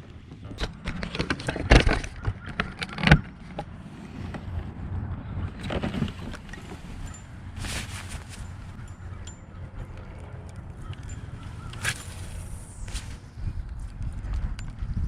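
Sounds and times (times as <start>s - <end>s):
soft rushing sounds: 11.0s - 14.5s.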